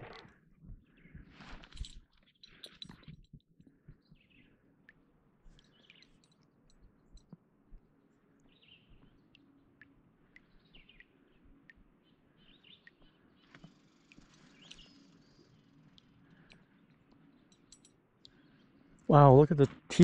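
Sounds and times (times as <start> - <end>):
faint bird chirps: 2.4 - 4.7, 5.5 - 7.3, 8.4 - 19.0.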